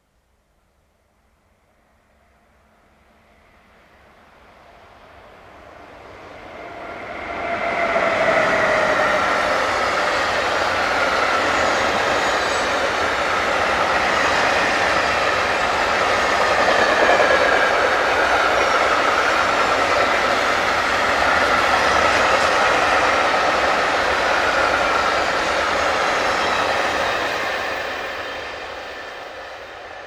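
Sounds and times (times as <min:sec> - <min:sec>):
freight train wheels rumbling: 0:05.4 - 0:30.0.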